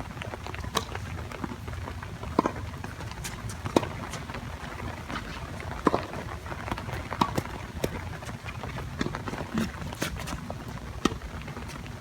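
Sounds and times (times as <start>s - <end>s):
tennis ball struck by racquets: 5.8s - 6.3s, 7.2s - 8.0s.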